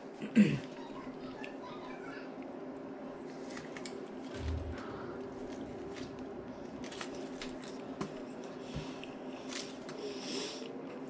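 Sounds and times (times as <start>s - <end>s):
low hum: 4.2s - 8.5s
soft low thump: 4.4s - 6.2s
foil wrapper rustling: 5.4s - 8.5s.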